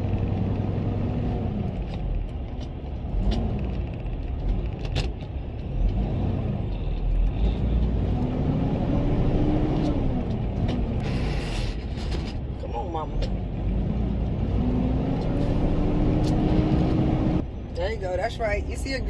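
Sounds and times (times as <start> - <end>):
truck diesel engine revving: 7.3 - 11.4, 13.0 - 17.4.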